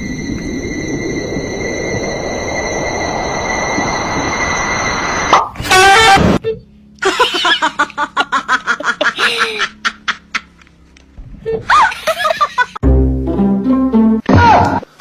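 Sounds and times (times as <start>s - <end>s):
person laughing in quick bursts: 7.0s - 10.6s
low sustained music notes: 12.8s - 14.3s.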